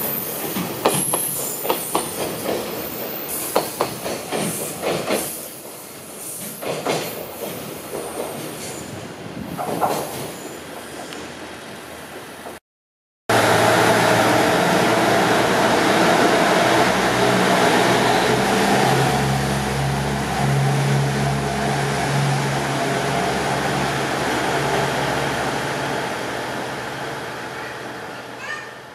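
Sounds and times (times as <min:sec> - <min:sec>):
diesel railcar engine running: 0:13.3 - 0:28.4.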